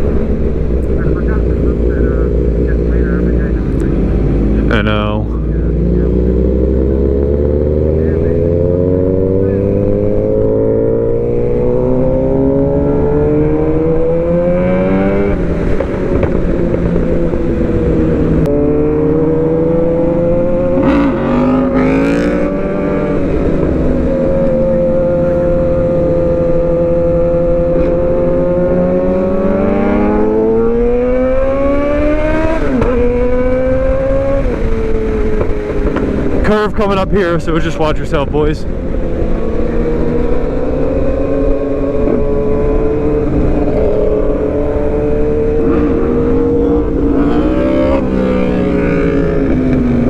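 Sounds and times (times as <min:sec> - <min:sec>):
motorcycle accelerating through gears: 0:05.4 - 0:38.0, 0:38.6 - 0:50.0.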